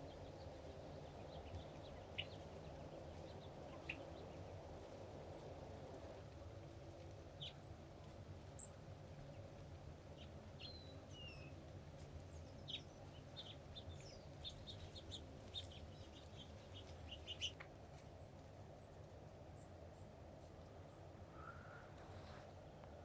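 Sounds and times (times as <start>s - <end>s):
birds chirping: 12.4s - 17.6s.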